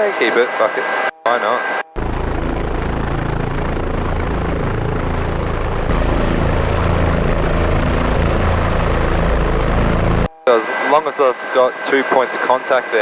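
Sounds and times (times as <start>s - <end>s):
helicopter engine and rotor drone: 2.0s - 10.3s.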